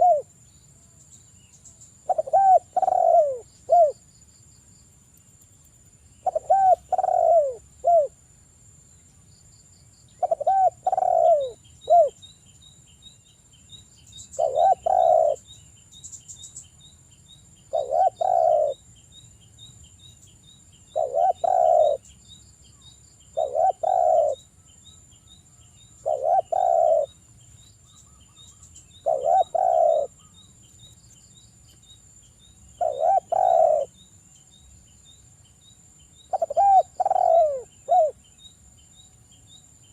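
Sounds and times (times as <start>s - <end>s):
dove cooing: 0.0s - 0.3s, 2.0s - 4.0s, 6.2s - 8.2s, 10.2s - 12.2s, 14.4s - 15.4s, 17.7s - 18.8s, 20.9s - 22.1s, 23.3s - 24.5s, 26.0s - 27.2s, 28.9s - 30.3s, 32.8s - 33.9s, 36.3s - 38.2s.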